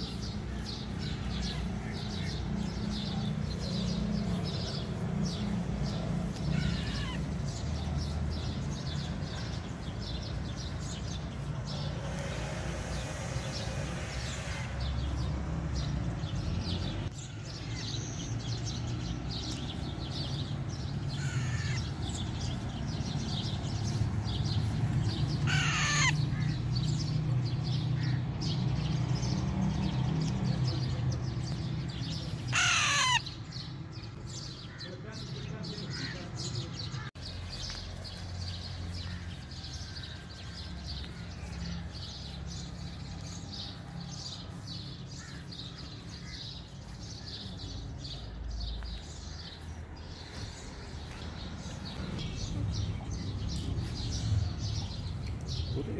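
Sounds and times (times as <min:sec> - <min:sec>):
birds chirping: 0:00.0 - 0:55.9
harsh falling bird squawks: 0:06.4 - 0:07.3, 0:21.2 - 0:22.0, 0:25.4 - 0:26.6, 0:32.5 - 0:33.4.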